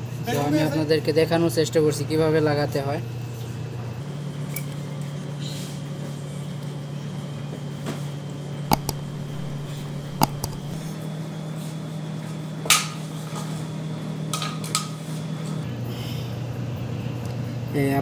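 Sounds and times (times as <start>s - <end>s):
metal clicks and knocks: 8.7s - 10.8s
steady low hum: 8.7s - 11.0s.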